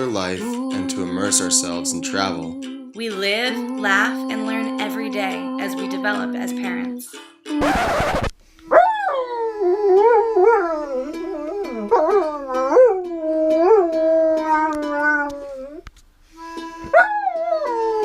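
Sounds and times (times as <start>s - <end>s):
background music: 0.0s - 15.1s
dog howling: 8.7s - 15.8s, 16.5s - 18.0s.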